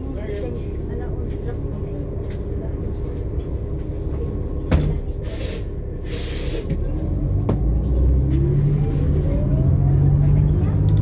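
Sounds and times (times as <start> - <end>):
bus accelerating with rising whine: 0.0 - 11.0
bus engine rumbling: 0.0 - 11.0
short hiss of air: 5.3 - 6.6.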